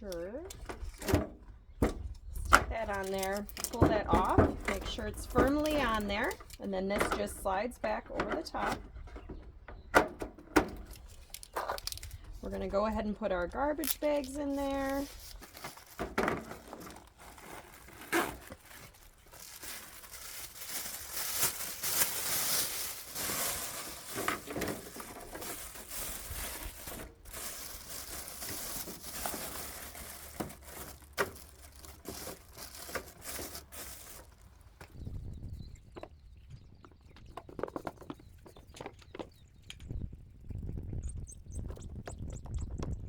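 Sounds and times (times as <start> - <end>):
plastic bag crinkling: 2.8 - 6.6, 11.0 - 34.8.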